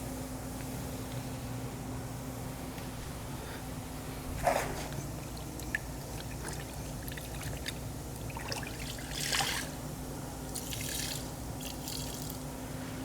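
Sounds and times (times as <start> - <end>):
water trickling from sponge: 5.1 - 9.7.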